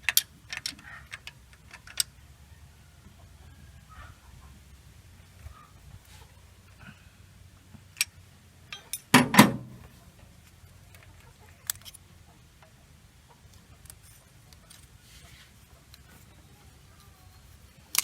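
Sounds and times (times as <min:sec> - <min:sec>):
loud ringing metal clank: 0:09.2 - 0:09.9.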